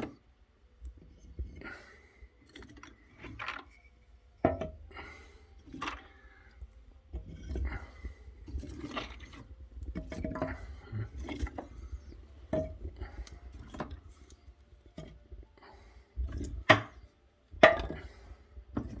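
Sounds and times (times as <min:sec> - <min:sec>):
logs knocking and clinking: 0:04.4 - 0:04.8, 0:08.6 - 0:14.1, 0:16.3 - 0:18.1.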